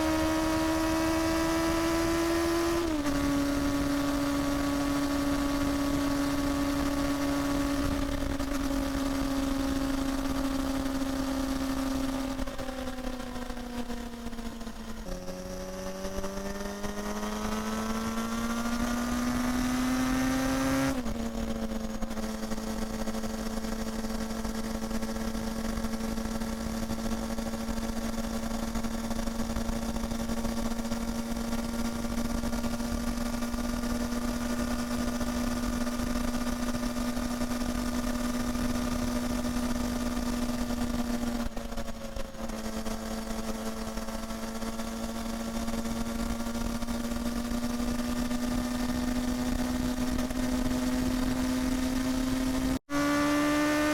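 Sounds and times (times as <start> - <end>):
motorcycle engine running steadily: 0.0 - 53.9.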